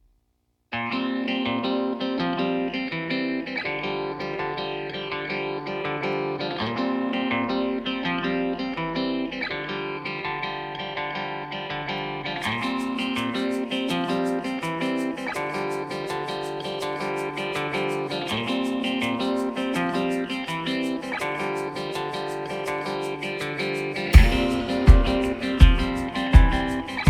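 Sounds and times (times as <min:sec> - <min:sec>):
plucked guitar pattern: 0:00.8 - 0:27.0
steady beat: 0:19.3 - 0:27.0.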